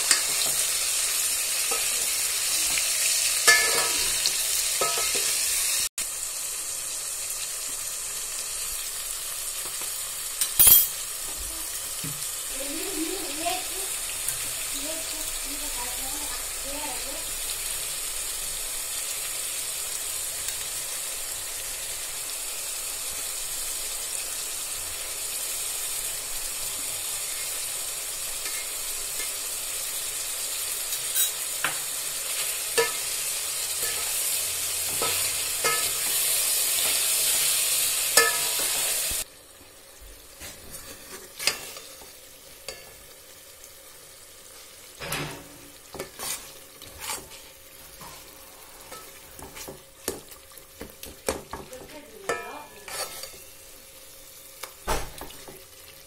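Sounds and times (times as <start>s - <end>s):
vegetables sizzling in a pot: 0.0s - 56.0s
steel ladle clinking on pot: 3.4s - 4.0s, 38.2s - 38.7s.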